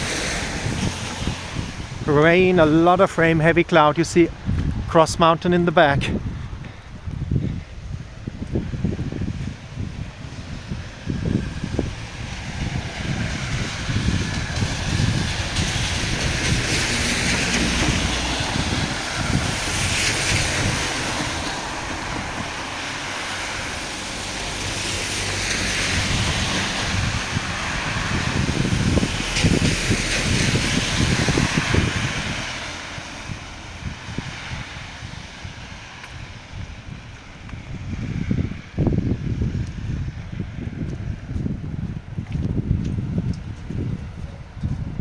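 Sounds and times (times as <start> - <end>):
wind buffeting microphone: 0.0 - 45.0
heavy rain hissing: 11.2 - 34.8.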